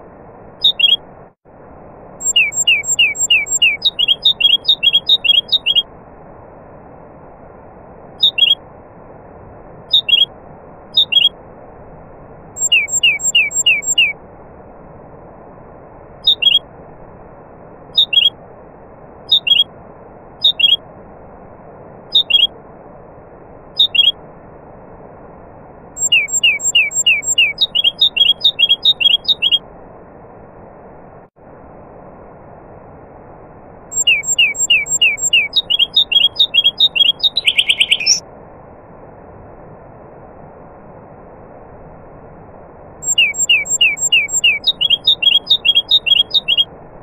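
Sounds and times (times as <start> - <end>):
steady rushing noise: 0.0 - 47.0
songbird whistled notes: 0.6 - 1.0, 2.2 - 5.9, 8.2 - 8.6, 9.9 - 10.3, 10.9 - 11.3, 12.6 - 14.2, 16.2 - 16.6, 18.0 - 18.4, 19.3 - 19.7, 20.4 - 20.8, 22.1 - 22.5, 23.8 - 24.2, 26.0 - 29.6, 33.9 - 38.2, 43.0 - 46.7.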